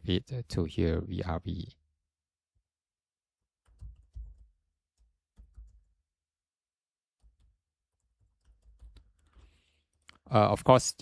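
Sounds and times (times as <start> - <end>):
keyboard and mouse clicks: 7.2 - 10.2.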